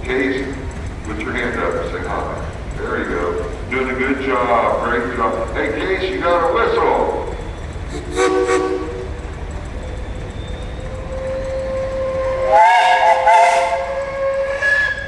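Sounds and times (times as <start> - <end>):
steam whistle blowing: 7.9 - 9.1, 10.8 - 15.0.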